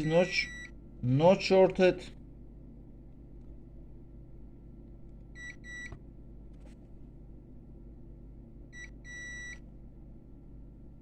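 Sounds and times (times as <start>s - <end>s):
multimeter continuity beeps: 0.0s - 0.8s, 5.4s - 5.9s, 8.8s - 9.6s
steady low hum: 0.0s - 11.0s.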